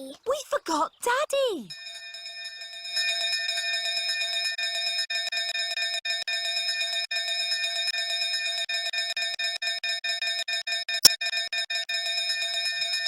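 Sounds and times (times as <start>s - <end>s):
bell ringing rapidly: 1.7s - 8.5s, 11.9s - 13.0s.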